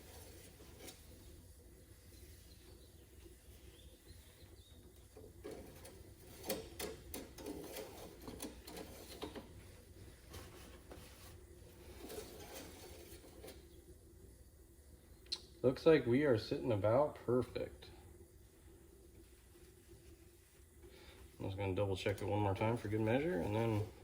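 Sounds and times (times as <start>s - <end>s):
light clicks and scrapes: 0.0s - 1.4s, 5.0s - 13.8s.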